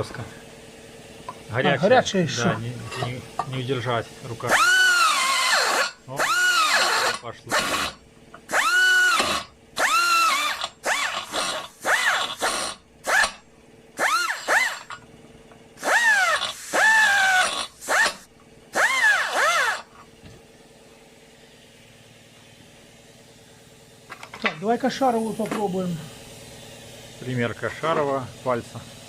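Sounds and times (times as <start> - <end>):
electric drill cutting metal: 4.4 - 13.4, 14.0 - 15.0, 15.8 - 19.9.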